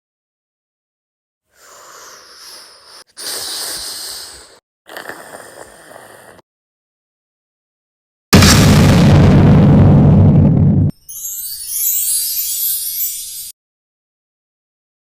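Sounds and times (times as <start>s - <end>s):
breathy hissing bursts: 1.5s - 4.6s.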